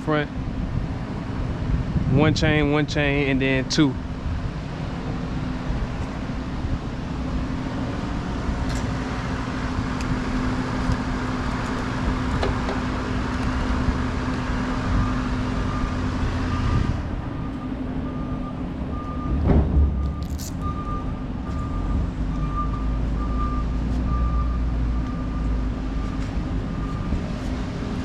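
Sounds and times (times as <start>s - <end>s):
vehicle engine humming: 0.0s - 28.0s
backup alarm beeping: 15.0s - 27.5s.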